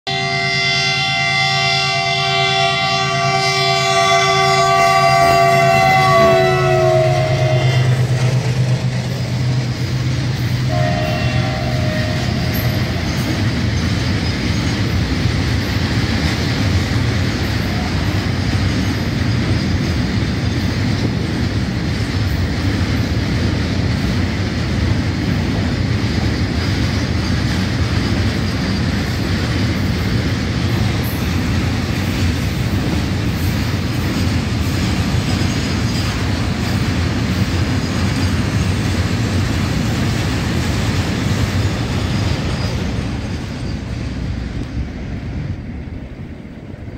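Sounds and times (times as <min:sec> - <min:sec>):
locomotive horn blasts: 0:00.1 - 0:08.7, 0:10.6 - 0:13.3
train wheels on rails: 0:00.1 - 0:46.9.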